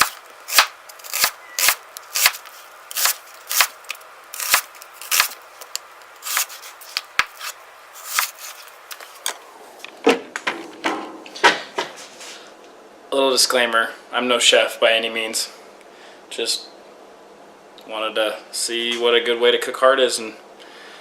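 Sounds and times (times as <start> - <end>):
knife chopping on cutting board: 0.0 - 3.7.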